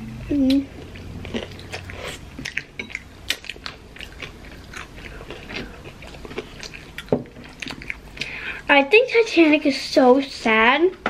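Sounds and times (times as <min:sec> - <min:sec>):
chewing crisp food: 0:00.4 - 0:08.4.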